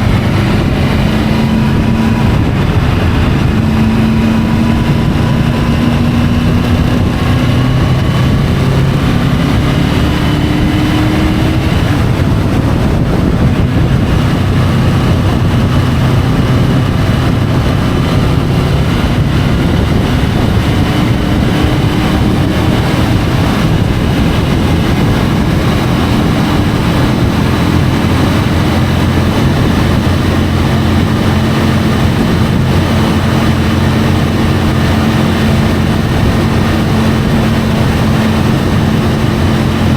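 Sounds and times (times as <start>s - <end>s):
motorcycle engine riding: 0.0s - 39.9s
wind and road noise: 0.0s - 39.9s.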